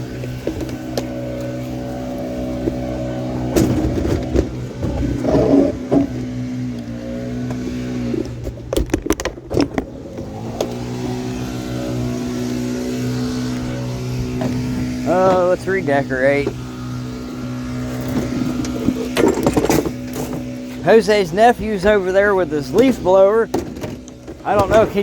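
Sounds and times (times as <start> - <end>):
knocks and rattling clatter: 0.0 - 11.1, 17.7 - 25.0
vehicle engine running: 0.0 - 25.0.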